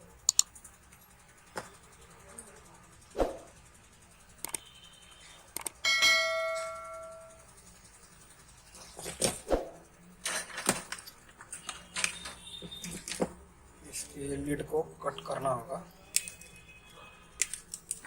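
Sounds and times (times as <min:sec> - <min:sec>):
tools and parts clicking: 0:00.2 - 0:01.1, 0:05.5 - 0:06.9, 0:10.2 - 0:13.4, 0:16.1 - 0:16.6, 0:17.4 - 0:18.0
small metal object ringing: 0:05.8 - 0:07.4.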